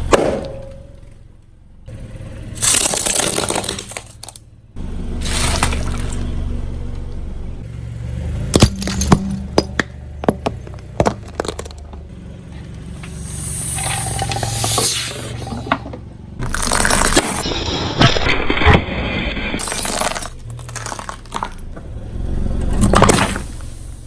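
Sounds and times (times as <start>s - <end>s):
tyre crushing objects: 2.6s - 4.4s, 8.5s - 12.0s, 16.4s - 17.4s, 19.6s - 21.8s
low steady hum: 3.9s - 23.0s
hissing spraying noise: 12.9s - 15.7s.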